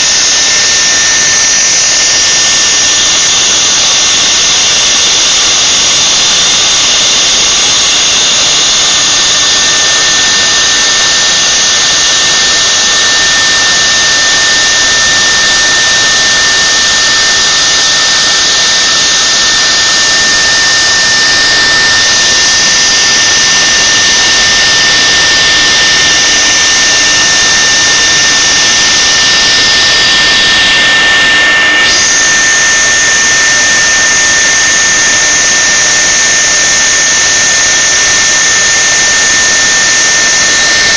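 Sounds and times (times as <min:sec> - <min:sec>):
machine high whine: 0:00.0 - 0:40.9.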